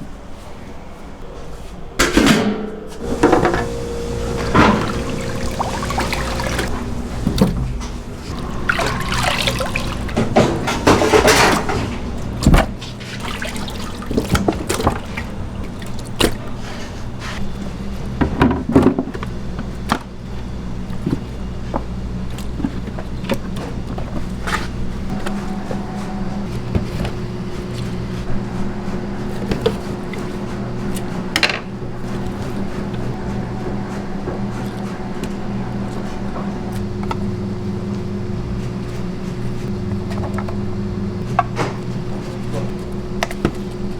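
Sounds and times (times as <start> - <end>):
steady low hum: 0.0 - 18.4
water splashing: 3.0 - 16.4
kitchen knocks and clatter: 9.0 - 13.2.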